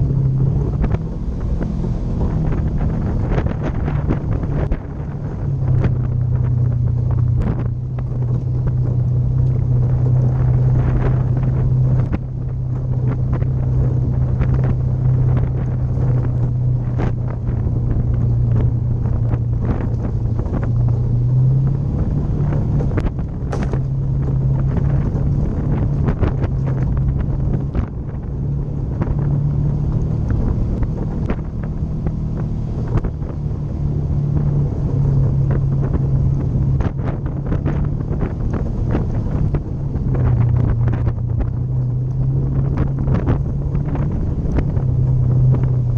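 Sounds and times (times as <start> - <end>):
vehicle engine running: 0.0 - 45.9
wind on the microphone: 0.0 - 45.9
knocks and rattles: 22.4 - 27.9.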